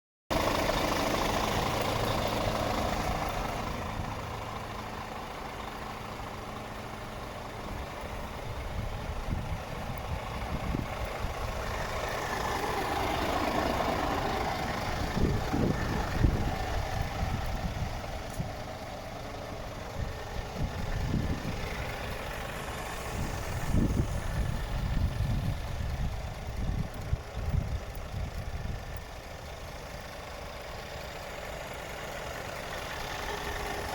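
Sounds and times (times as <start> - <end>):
truck diesel engine idling: 0.3 - 33.9
low thumps and rumbles: 13.2 - 29.8.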